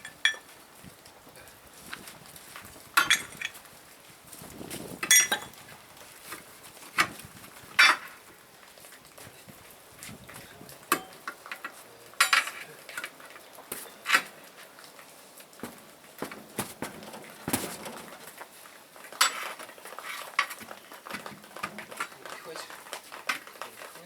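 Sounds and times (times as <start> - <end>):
metal clanks and knocks: 3.0 - 3.6, 5.0 - 5.6, 15.7 - 18.3.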